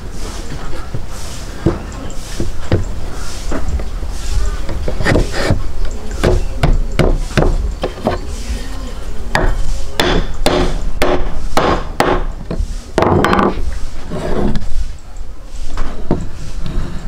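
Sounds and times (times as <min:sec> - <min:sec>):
sharp knocks: 0:04.7 - 0:08.2, 0:09.3 - 0:13.6.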